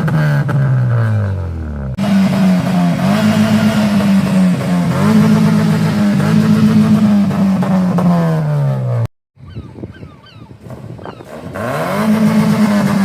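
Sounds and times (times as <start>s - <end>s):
car engine revving: 0.0s - 9.1s, 10.7s - 13.0s.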